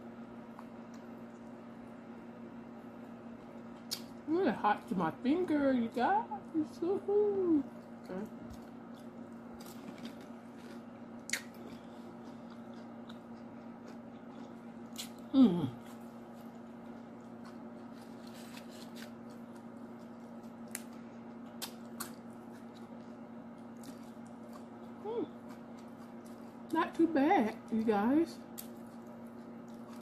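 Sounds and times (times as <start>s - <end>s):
steady low hum: 0.0s - 30.0s
chewing and crunching chips: 7.6s - 30.0s
sharp mouth clicks: 11.3s - 11.5s.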